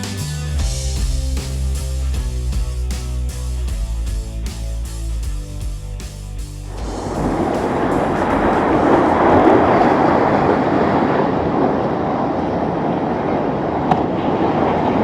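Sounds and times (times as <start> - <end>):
wind: 6.6 - 15.0
powerboat engine: 6.7 - 11.6
water splashing: 6.7 - 12.0.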